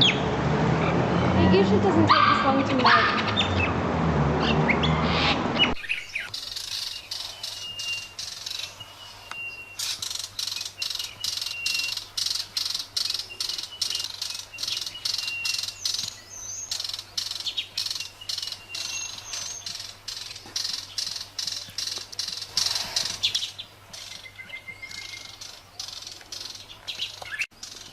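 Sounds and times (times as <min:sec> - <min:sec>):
birds chirping: 0:00.0 - 0:03.8, 0:04.4 - 0:27.9.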